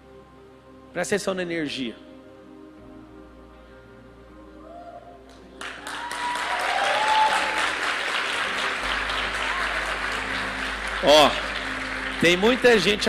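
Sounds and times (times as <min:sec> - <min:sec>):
soft background music: 0:00.0 - 0:13.0
audience applause: 0:05.6 - 0:13.0.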